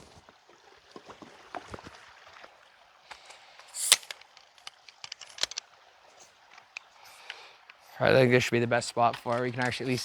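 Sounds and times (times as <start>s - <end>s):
small clicks and knocks: 3.1s - 7.8s, 9.0s - 10.0s.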